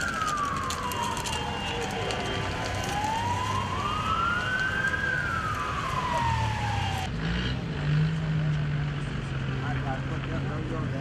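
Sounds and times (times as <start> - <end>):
siren wailing: 0.0 - 7.1.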